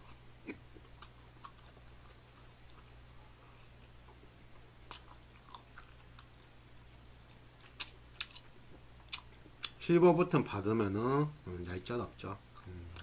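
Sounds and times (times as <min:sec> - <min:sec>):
faint chewing: 0:00.0 - 0:09.8.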